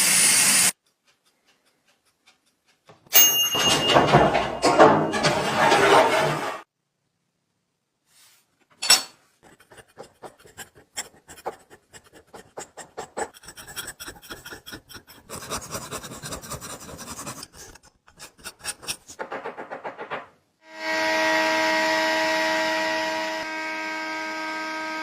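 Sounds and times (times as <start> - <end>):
file rasping on metal: 9.4 - 19.3.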